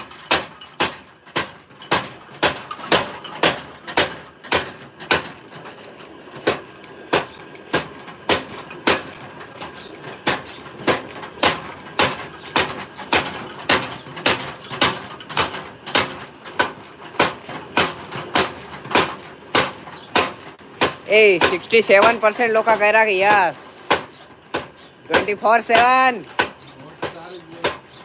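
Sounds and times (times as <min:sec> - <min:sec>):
hammer striking metal: 0:00.0 - 0:05.4, 0:06.4 - 0:27.8.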